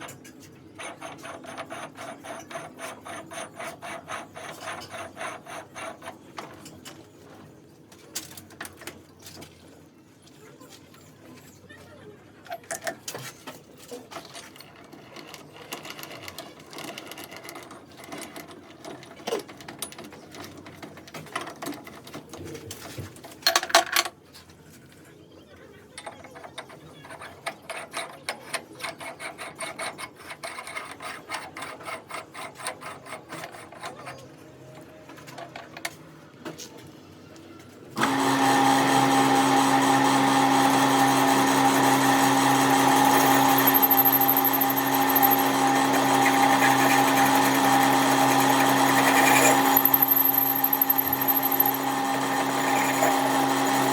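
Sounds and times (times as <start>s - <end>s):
power tool motor running: 38.0s - 53.9s.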